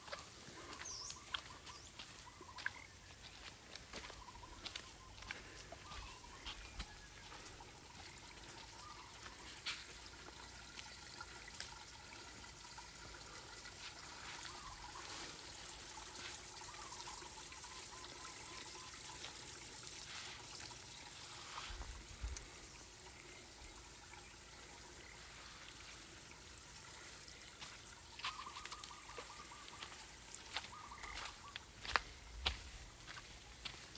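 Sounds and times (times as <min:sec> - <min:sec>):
faint bird chirps: 0:00.0 - 0:07.6, 0:08.7 - 0:09.5, 0:14.4 - 0:15.4, 0:28.0 - 0:32.2.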